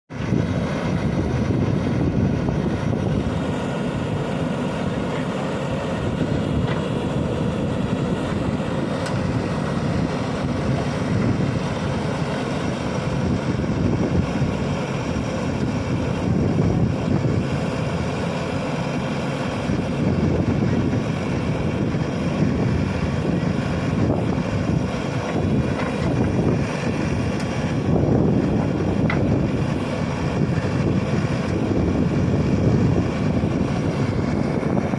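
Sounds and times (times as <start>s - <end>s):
diesel engine under load: 0.1s - 34.9s.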